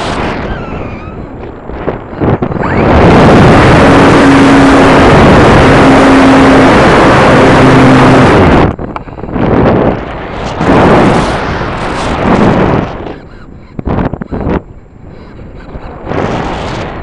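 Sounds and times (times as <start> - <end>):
wind rushing over microphone: 0.0 - 17.0
model airplane motor hum: 2.4 - 12.5.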